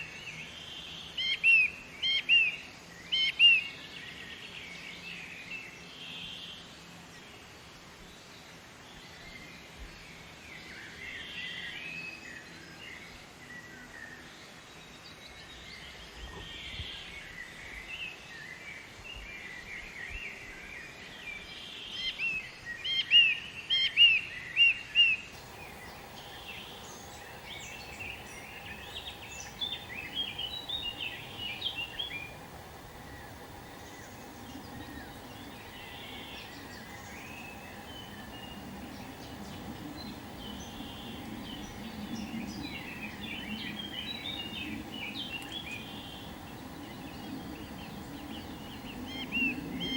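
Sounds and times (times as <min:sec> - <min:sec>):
outdoor background noise: 0:00.0 - 0:49.9
songbirds chirping: 0:00.0 - 0:49.9.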